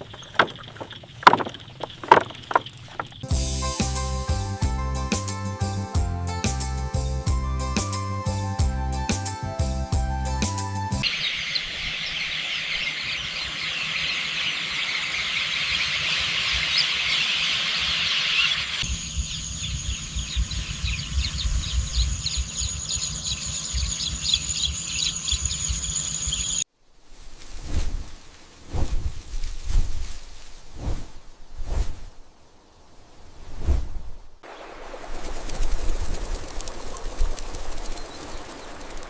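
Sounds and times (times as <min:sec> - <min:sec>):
bird chirps: 0:00.0 - 0:03.3, 0:11.0 - 0:26.6, 0:36.1 - 0:39.0
insects buzzing: 0:00.0 - 0:04.1, 0:11.0 - 0:26.7, 0:34.4 - 0:39.0
low wind rumble: 0:18.8 - 0:39.0.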